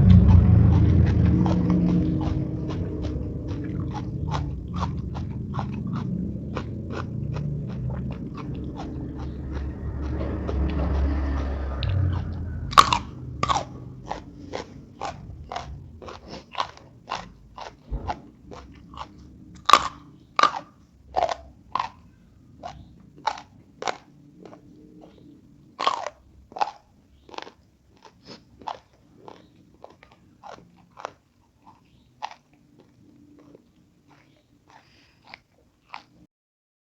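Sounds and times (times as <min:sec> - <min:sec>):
crunchy bites: 0:00.0 - 0:22.0
person chewing crunchy food: 0:00.0 - 0:36.3.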